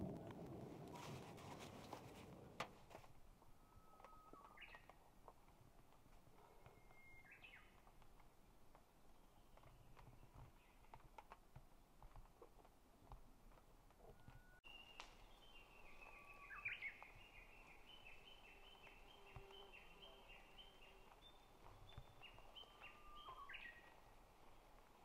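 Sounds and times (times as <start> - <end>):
faint whistled birdsong: 3.4 - 5.0, 6.4 - 7.8, 9.2 - 10.9, 14.0 - 24.7.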